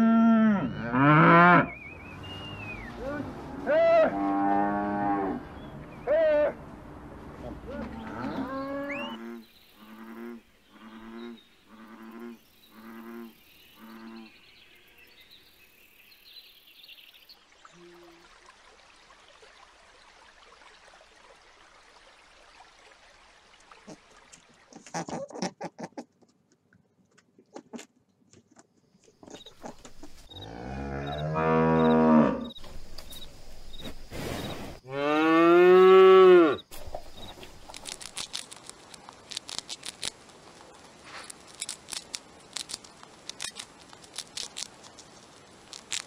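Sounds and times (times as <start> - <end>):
cow mooing: 0.0 - 1.7, 3.0 - 5.4, 7.7 - 13.3, 30.4 - 32.6, 34.9 - 36.6
hamster gnawing food: 36.8 - 46.0.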